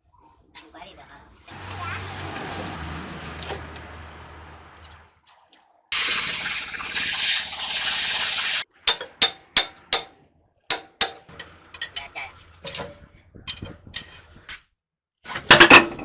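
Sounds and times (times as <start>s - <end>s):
workshop hum: 1.5s - 5.0s, 6.0s - 8.6s
loud spraying hiss: 6.0s - 8.6s.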